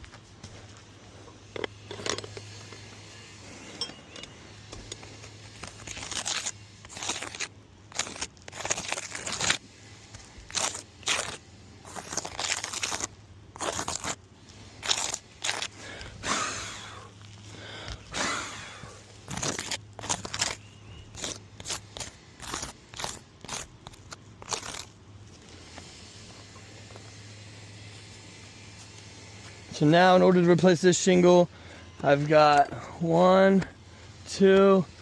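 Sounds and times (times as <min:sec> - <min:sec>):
roof shingles scraping and tearing: 0:05.2 - 0:16.4, 0:17.6 - 0:25.0.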